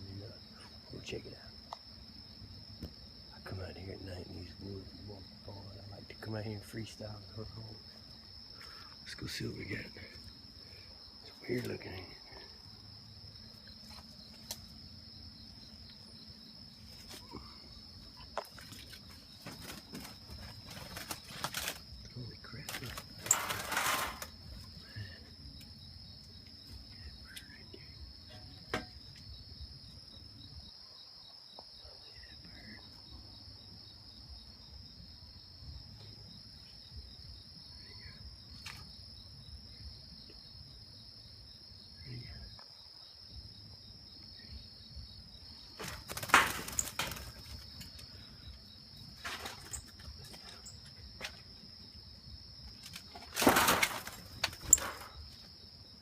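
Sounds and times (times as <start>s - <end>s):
insects chirping: 0.0s - 56.0s.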